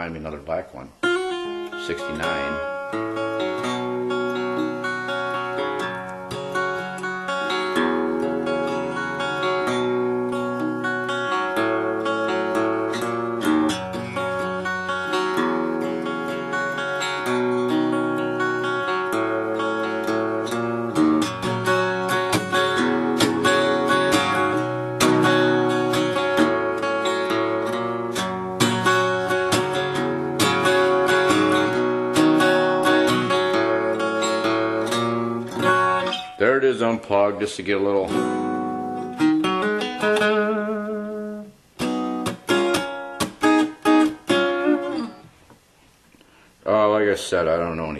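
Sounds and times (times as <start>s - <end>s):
acoustic guitar strumming chords: 0.0s - 45.7s.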